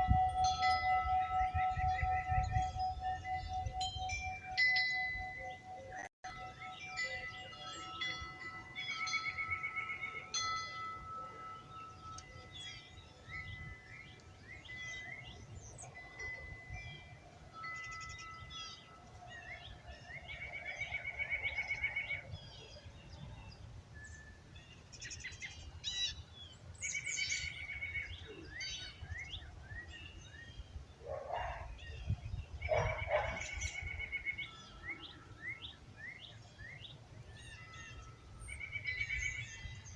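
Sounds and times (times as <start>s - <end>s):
wind chime ringing: 0.0s - 22.7s, 37.2s - 39.9s
songbirds chirping and trilling: 0.0s - 39.9s
lower bird calls: 26.8s - 39.9s.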